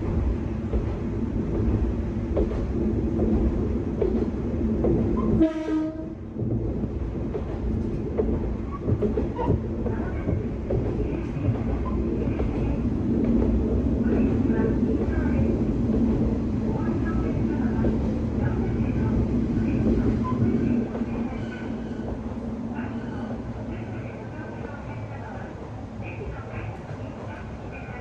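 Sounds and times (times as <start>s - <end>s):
diesel railcar engine rumbling: 0.0s - 28.0s
train wheels clicking over rail joints: 0.2s - 5.5s, 6.3s - 16.5s
train horn: 5.4s - 6.2s.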